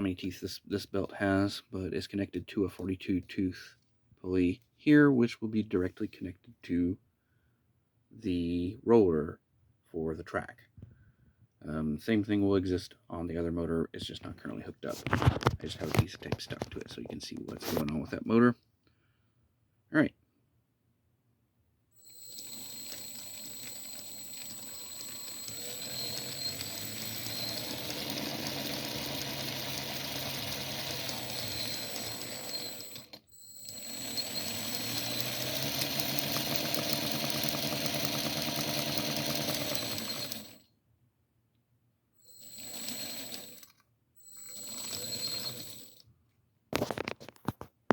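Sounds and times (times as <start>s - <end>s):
electric motors spinning belt drive: 22.0s - 40.6s, 42.3s - 46.0s
high whine from speed controllers: 22.0s - 40.6s, 44.2s - 46.0s.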